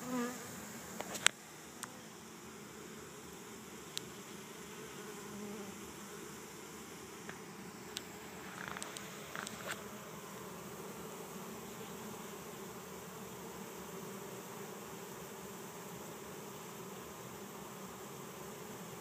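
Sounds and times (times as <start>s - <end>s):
bee swarm buzzing: 0.0s - 19.0s.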